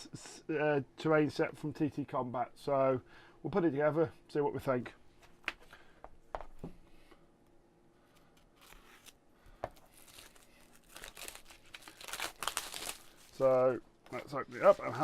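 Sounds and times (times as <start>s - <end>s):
packaging crinkling and tearing: 9.8s - 15.0s.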